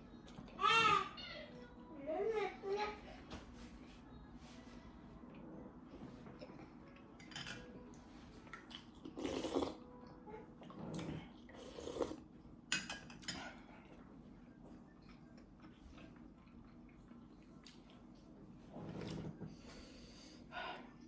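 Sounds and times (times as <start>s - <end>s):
cutlery clinking against dishes: 7.2s - 7.8s, 12.7s - 13.6s.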